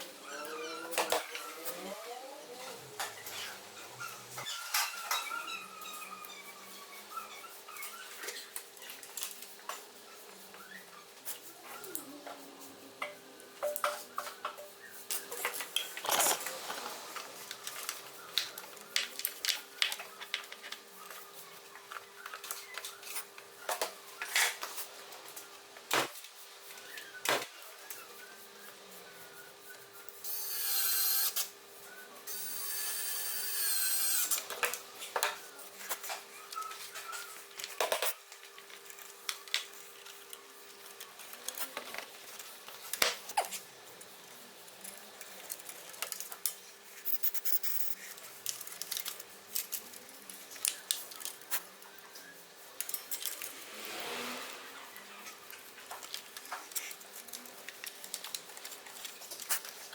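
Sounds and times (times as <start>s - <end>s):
small power tool running: 30.2s - 31.4s, 32.3s - 34.5s.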